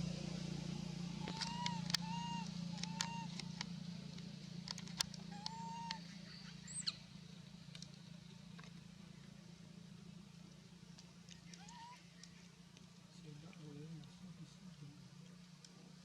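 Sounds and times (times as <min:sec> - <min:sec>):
steady low hum: 0:00.0 - 0:16.0
sharp clicks: 0:01.2 - 0:02.1, 0:02.8 - 0:06.0
short arched animal calls: 0:01.2 - 0:03.6, 0:05.3 - 0:07.0, 0:11.4 - 0:12.5.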